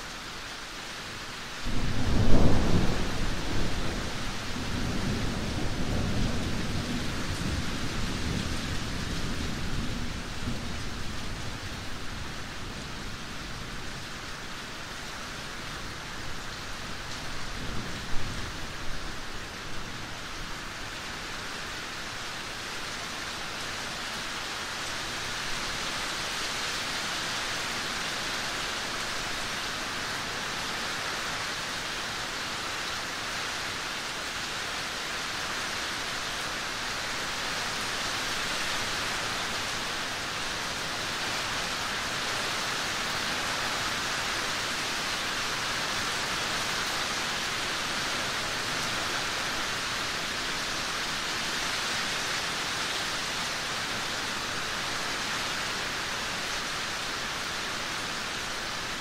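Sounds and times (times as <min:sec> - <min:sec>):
steady rain falling: 0:00.0 - 0:59.0
thunder rumbling: 0:01.7 - 0:11.1.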